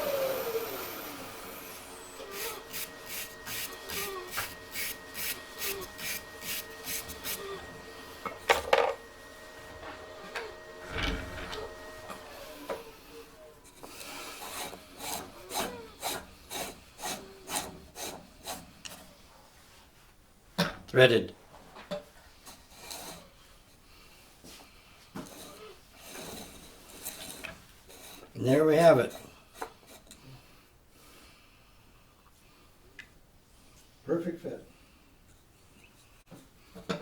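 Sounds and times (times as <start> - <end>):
wood rubbing and rasping: 0.0 - 8.4, 9.7 - 19.1, 25.2 - 30.2.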